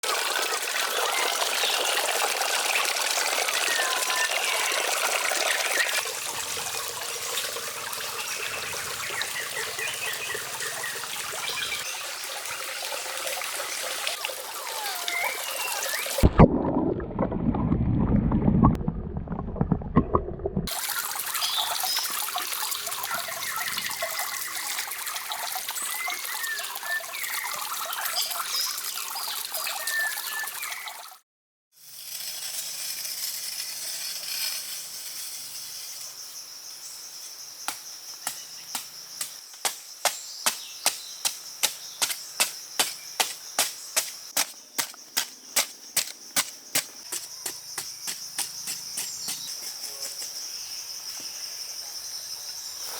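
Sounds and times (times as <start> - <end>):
water running and trickling: 0.0 - 31.2
deep rumbling: 16.2 - 20.7.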